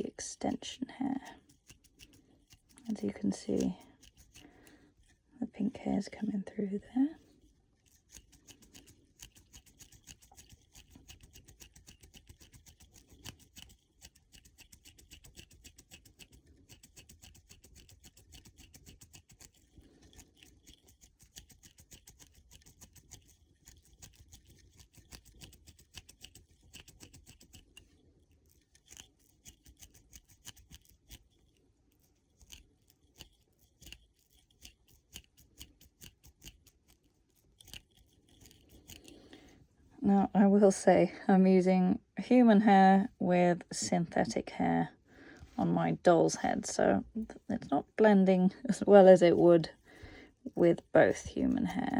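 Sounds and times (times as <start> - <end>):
hair crackling: 0.0 - 4.8
crochet hook scratchy clicking: 0.0 - 6.4, 7.8 - 39.2.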